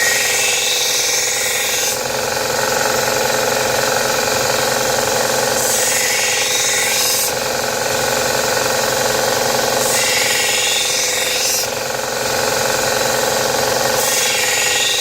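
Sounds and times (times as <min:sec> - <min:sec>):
steel blade grinding hiss: 0:00.0 - 0:02.0, 0:05.6 - 0:07.5, 0:09.8 - 0:11.9, 0:13.9 - 0:15.0
electric grinder running: 0:00.0 - 0:15.0.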